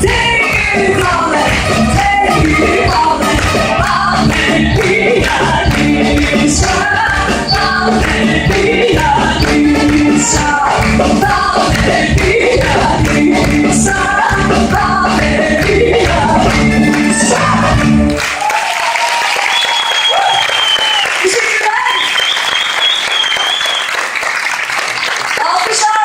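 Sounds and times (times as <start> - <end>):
person singing: 0.0 - 18.2
live band playing: 0.0 - 18.5.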